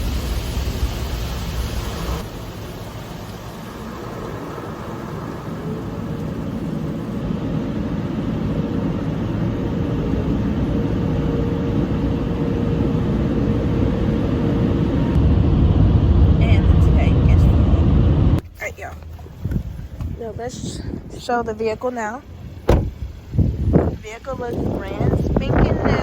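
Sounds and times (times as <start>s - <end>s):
car wash machinery rushing: 0.0s - 26.0s
faint hum: 2.2s - 18.4s.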